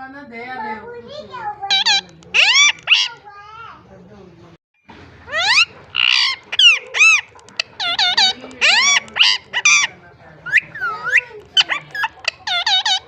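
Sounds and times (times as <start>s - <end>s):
parrot whistled calls: 1.7s - 3.2s, 5.3s - 9.9s.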